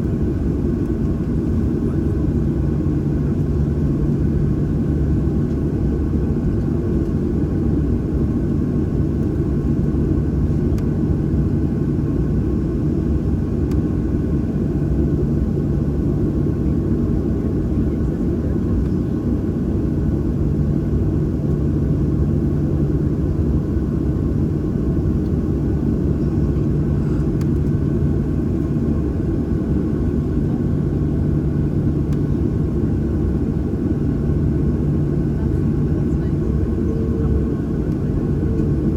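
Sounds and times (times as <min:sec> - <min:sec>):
jet engines heard in cabin: 0:00.0 - 0:38.9.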